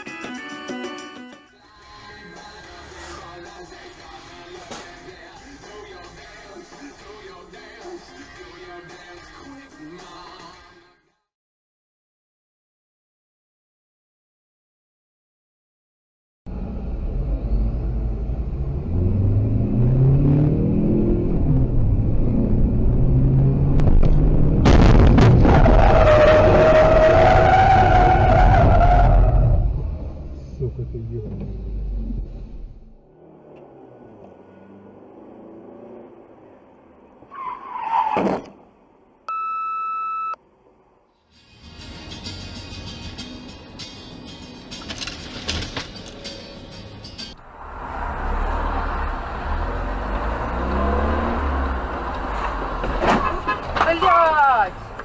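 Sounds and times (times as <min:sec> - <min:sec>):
car engine accelerating: 0:16.5 - 0:37.3, 0:47.4 - 0:53.7
sudden loud burst of noise: 0:23.8 - 0:25.9
tyre screech: 0:37.3 - 0:38.6
electronic beep: 0:39.3 - 0:40.4.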